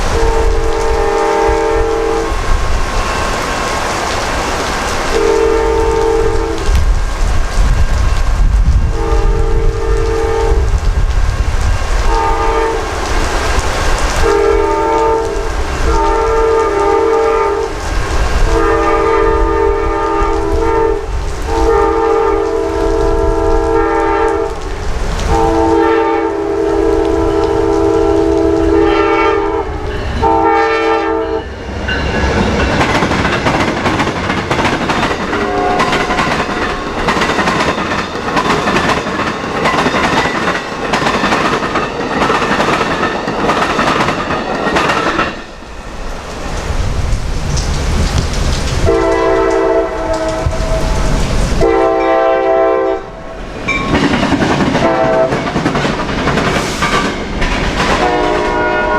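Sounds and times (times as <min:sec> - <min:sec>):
train rumbling and clattering: 0:00.0 - 0:58.9
locomotive air horn blasts: 0:00.1 - 0:02.3, 0:05.1 - 0:06.7, 0:08.9 - 0:10.7, 0:12.1 - 0:12.9, 0:14.2 - 0:17.7, 0:18.4 - 0:24.6, 0:25.3 - 0:31.5, 0:35.4 - 0:36.0, 0:48.8 - 0:51.0, 0:51.6 - 0:53.4, 0:54.8 - 0:55.3, 0:58.0 - 0:58.9.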